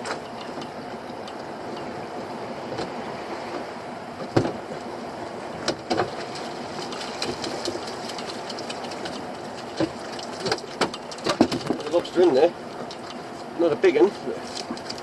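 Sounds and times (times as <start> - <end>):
boat engine running: 0.0 - 15.0
sharp knocks and clatters: 5.6 - 11.9.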